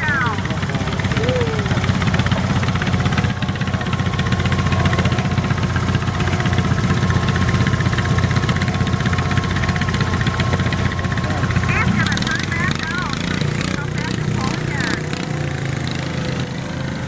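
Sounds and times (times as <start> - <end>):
garden tractor engine running: 0.0 - 17.0.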